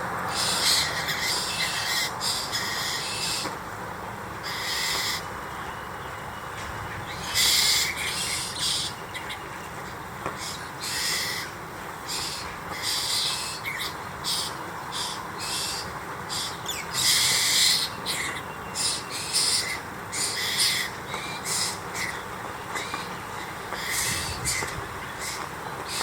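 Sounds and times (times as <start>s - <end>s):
young bird's harsh hissing calls: 0.3s - 3.6s, 4.4s - 5.3s, 7.1s - 9.4s, 10.4s - 22.2s, 23.8s - 26.0s.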